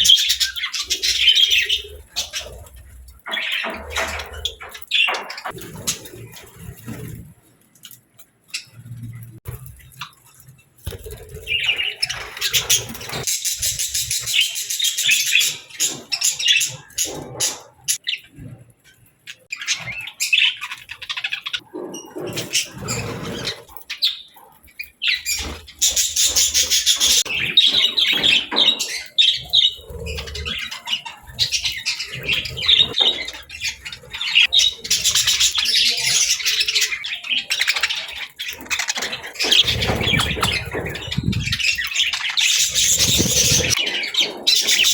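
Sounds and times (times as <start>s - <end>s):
budgerigars chirping and chattering: 0.0s - 7.1s, 10.9s - 44.9s.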